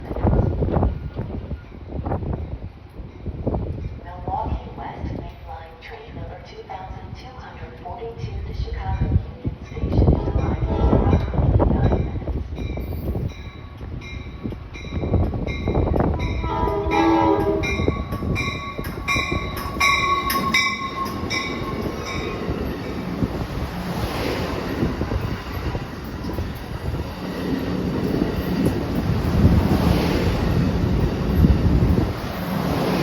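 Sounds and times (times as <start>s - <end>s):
train rumbling past: 0.0s - 33.0s
bell ringing: 15.6s - 23.0s
train air horn blast: 16.1s - 18.0s.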